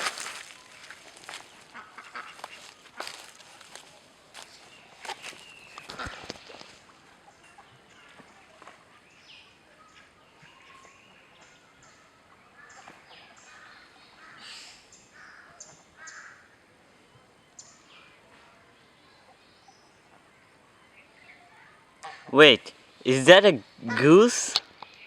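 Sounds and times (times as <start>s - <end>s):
birds cawing: 0.0s - 3.8s, 5.1s - 6.8s, 12.6s - 16.6s, 23.8s - 24.6s
birds chirping: 0.0s - 25.0s.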